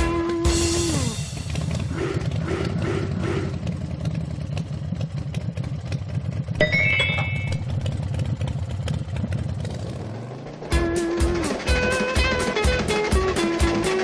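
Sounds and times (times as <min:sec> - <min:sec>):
cartoon train chugging: 0:00.0 - 0:05.6, 0:10.4 - 0:14.0
rising high notes: 0:06.6 - 0:08.1.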